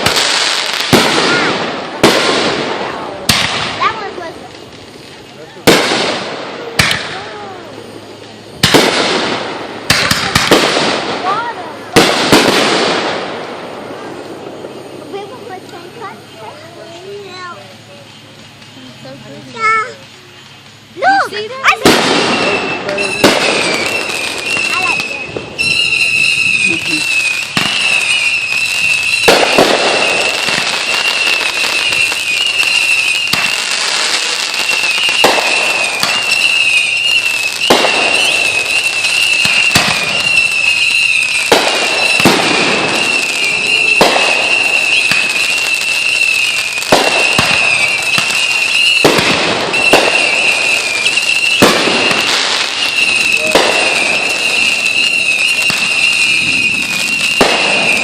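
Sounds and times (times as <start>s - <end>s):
fireworks exploding: 0.0s - 58.0s.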